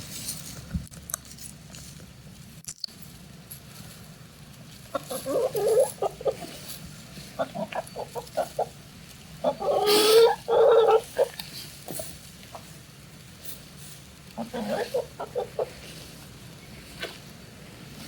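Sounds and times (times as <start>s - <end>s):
hen clucking: 4.8s - 17.3s
hen calls: 4.9s - 12.8s, 14.3s - 16.7s.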